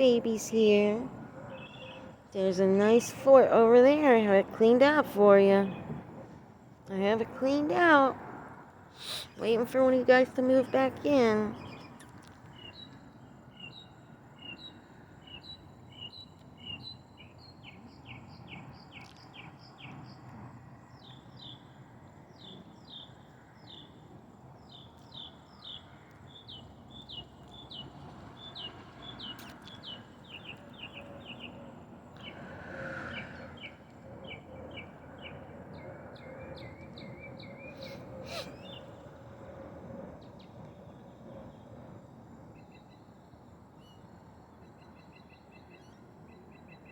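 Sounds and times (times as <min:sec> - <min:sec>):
birds chirping: 0:00.0 - 0:05.9, 0:24.7 - 0:31.6, 0:33.1 - 0:39.1.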